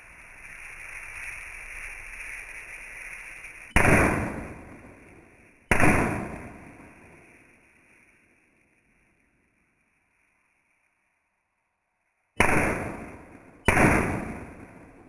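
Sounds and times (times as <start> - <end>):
loud blasts: 12.4 - 14.9.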